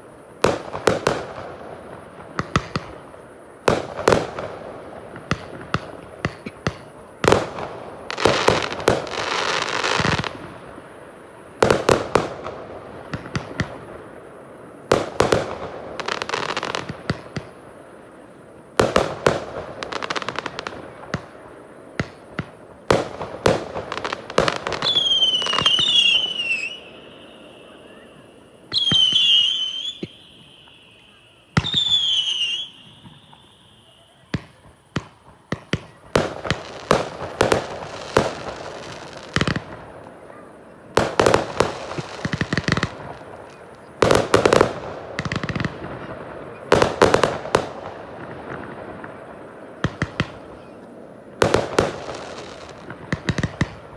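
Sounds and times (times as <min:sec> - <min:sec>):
fireworks bangs: 0:00.0 - 0:53.9
fireworks crackling bursts: 0:00.0 - 0:53.9
high wavering whistles: 0:24.8 - 0:34.3.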